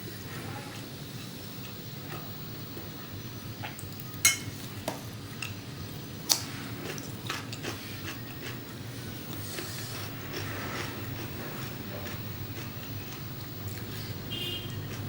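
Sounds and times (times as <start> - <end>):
utensils clinking on a dish: 4.2 - 5.0.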